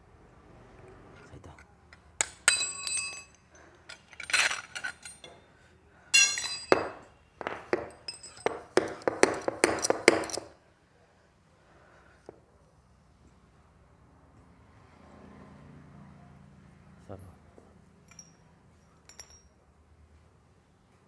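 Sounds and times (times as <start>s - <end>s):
metal tools clinking: 1.9s - 10.6s, 18.0s - 19.6s
sharp knocks: 6.7s - 10.5s.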